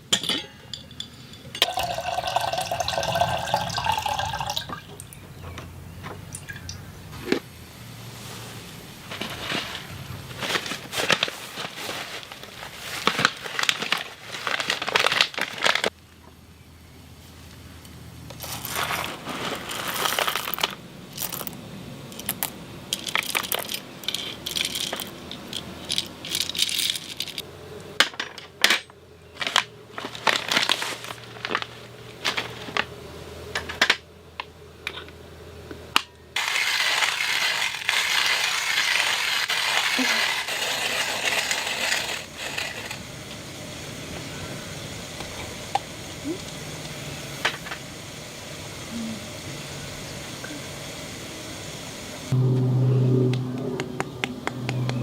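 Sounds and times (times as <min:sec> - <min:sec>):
steady hiss: 0:06.8 - 0:28.0, 0:36.4 - 0:52.4
objects clicking and clinking: 0:18.3 - 0:27.4.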